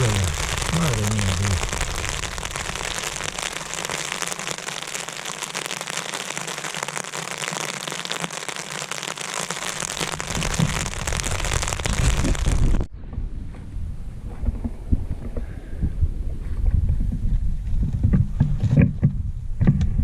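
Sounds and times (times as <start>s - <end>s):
heavy rain on a tent: 0.0s - 12.9s
wind buffeting microphone: 10.3s - 20.0s.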